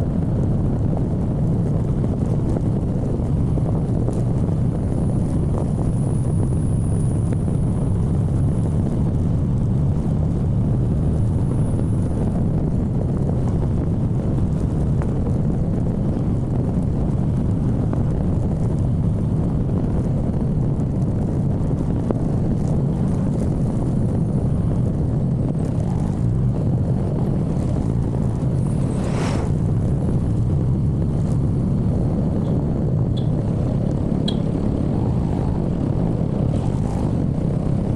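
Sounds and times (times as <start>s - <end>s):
wind: 0.0s - 37.9s
motorcycle engine: 22.5s - 37.9s.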